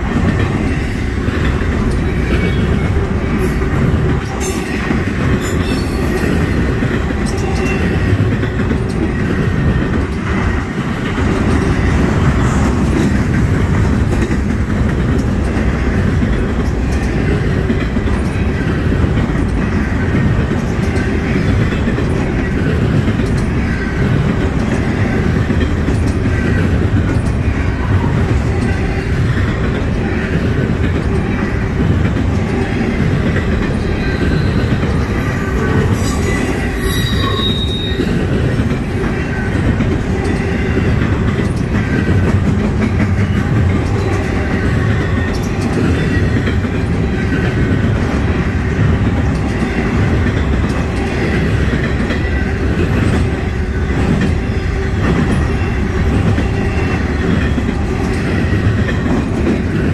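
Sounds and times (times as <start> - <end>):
steel wheels rumbling on rails: 0.0 - 59.9
high wheel squeals: 33.7 - 38.2.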